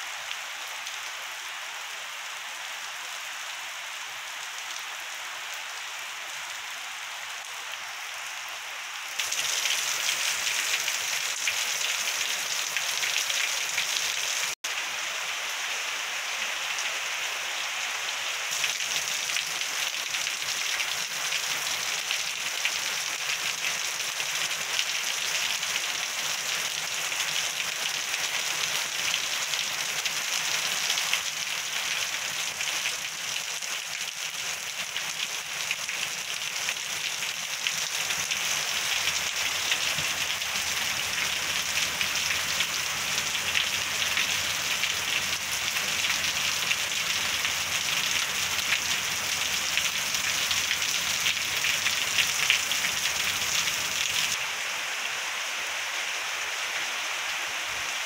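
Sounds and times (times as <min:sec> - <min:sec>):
heavy rain through pine trees: 0:00.0 - 0:58.0.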